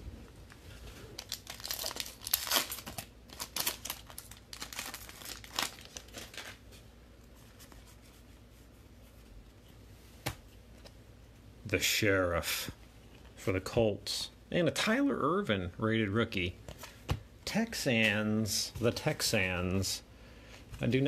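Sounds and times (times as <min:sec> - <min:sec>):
foil wrapper crinkling and tearing: 0:01.2 - 0:06.6.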